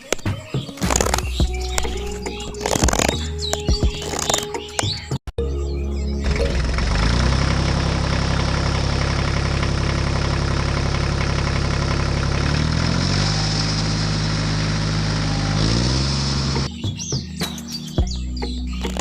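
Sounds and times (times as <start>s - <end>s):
engine running: 5.9s - 16.7s.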